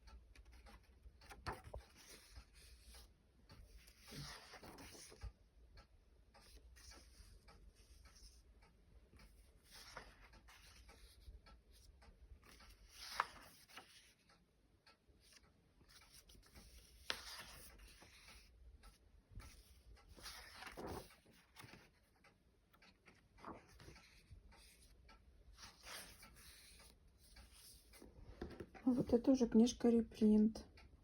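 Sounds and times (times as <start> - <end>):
paper pages rustling: 0.3 - 5.4, 9.2 - 14.3, 15.2 - 29.0.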